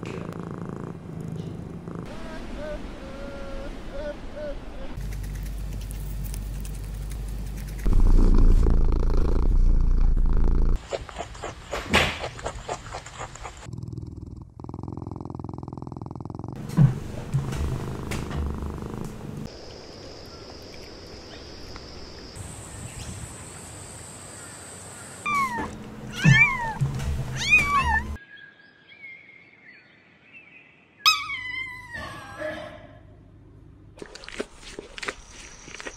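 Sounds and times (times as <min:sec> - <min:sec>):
cat purring loudly: 0:00.0 - 0:04.5, 0:07.6 - 0:10.8, 0:12.6 - 0:19.5
kittens mewing: 0:25.2 - 0:26.8, 0:27.4 - 0:28.2
guinea pigs munching greens: 0:34.0 - 0:35.9.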